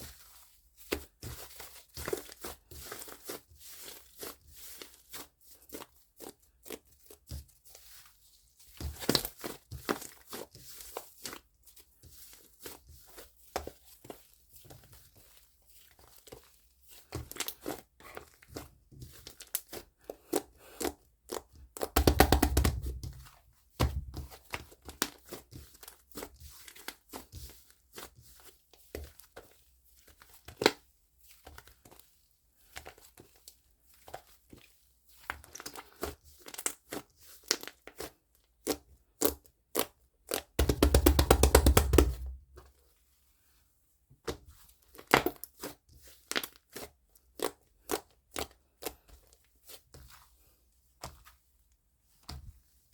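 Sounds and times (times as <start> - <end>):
slime crackling and popping: 21.9 - 23.1.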